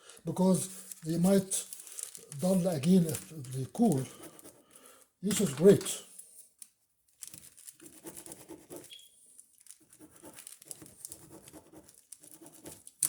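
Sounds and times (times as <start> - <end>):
pen scribbling on paper: 3.9 - 4.6, 7.8 - 9.0, 9.8 - 12.9.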